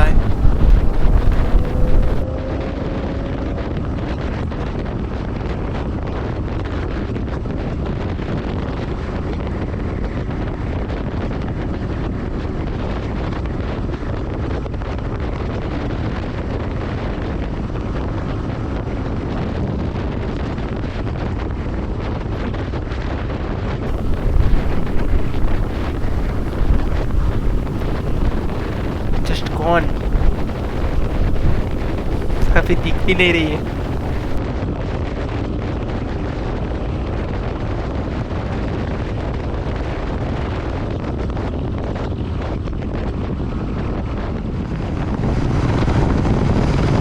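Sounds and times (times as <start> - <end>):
wind buffeting microphone: 0.0 - 2.2, 23.9 - 34.4
motorcycle engine: 23.9 - 34.4.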